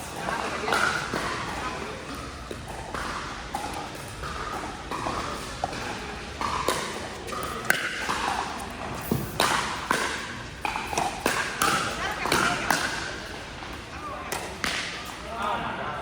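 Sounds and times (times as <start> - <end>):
paddles hitting plastic ball: 0.8 - 13.2.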